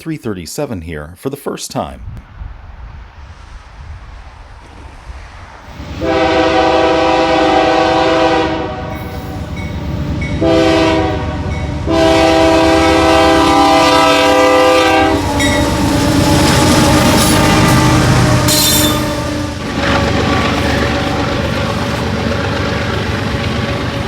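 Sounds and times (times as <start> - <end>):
train rumble: 2.0 - 24.0
train air horn blasts: 5.8 - 22.1
train wheels clattering on rails: 8.8 - 11.8, 12.7 - 24.0.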